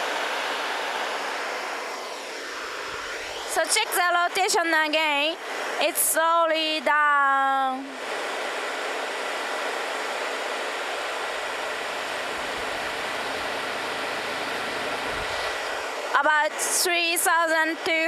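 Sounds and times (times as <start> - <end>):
generator running: 0.0 - 3.8, 8.0 - 16.2
faint steady whine: 0.0 - 18.0.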